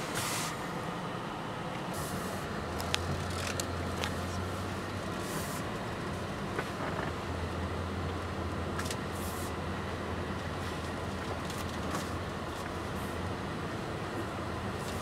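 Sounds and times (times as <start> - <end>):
car engine low hum: 0.0 - 15.0.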